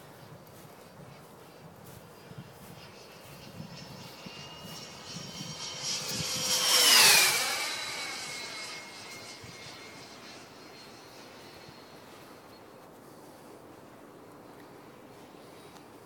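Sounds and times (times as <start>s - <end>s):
model jet fan whining past: 1.0s - 13.7s.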